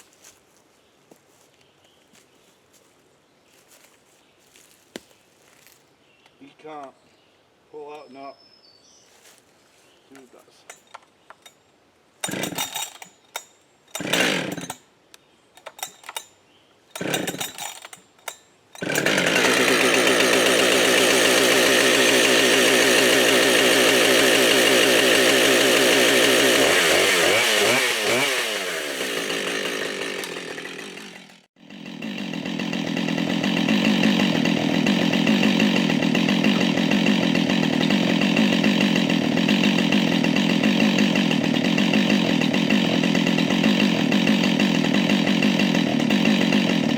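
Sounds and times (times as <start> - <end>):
chainsaw engine running: 12.2 - 13.1, 13.9 - 14.8, 17.0 - 46.9
chainsaw starter cord pulls: 12.2 - 14.8, 15.6 - 16.3, 16.9 - 46.9.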